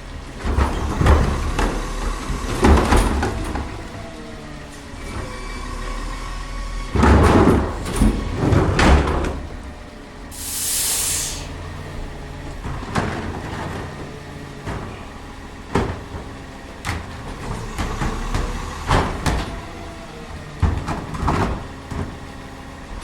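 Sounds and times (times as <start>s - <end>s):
garbage truck engine running: 0.0s - 23.0s
trash clattering into hopper: 0.2s - 5.7s, 6.9s - 10.4s, 11.5s - 23.0s
air hiss: 10.3s - 11.6s.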